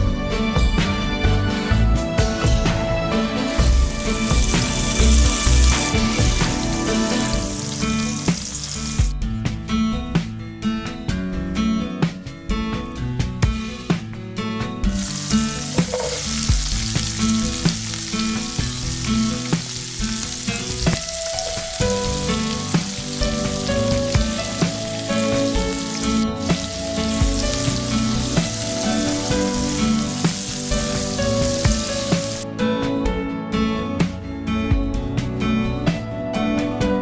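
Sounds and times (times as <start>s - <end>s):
guitar background music: 0.0s - 37.0s
food sizzling in frying pan: 3.3s - 9.1s, 15.0s - 32.4s.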